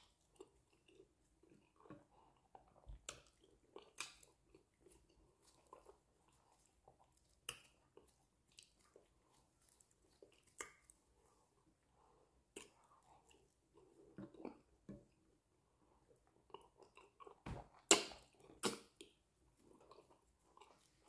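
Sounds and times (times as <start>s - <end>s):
wet chewing: 0.0s - 15.4s, 16.0s - 21.0s
lip smacks: 16.5s - 19.2s
wet mouth clicks: 17.8s - 19.1s.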